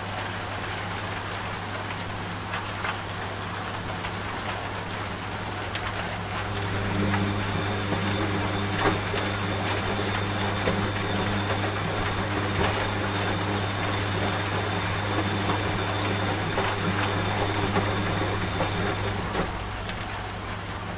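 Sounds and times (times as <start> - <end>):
rain patter: 0.0 - 20.9
washing machine motor hum: 5.9 - 20.9
faint high whine: 6.5 - 19.5.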